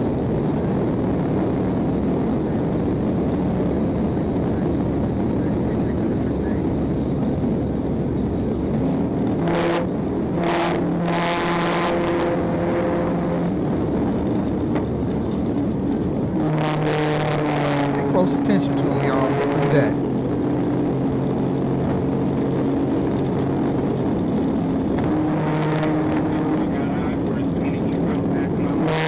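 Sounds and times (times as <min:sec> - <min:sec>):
car engine and tyre roar: 0:00.0 - 0:29.0
steady pitched siren note: 0:09.2 - 0:14.4, 0:16.2 - 0:20.4, 0:25.0 - 0:26.8.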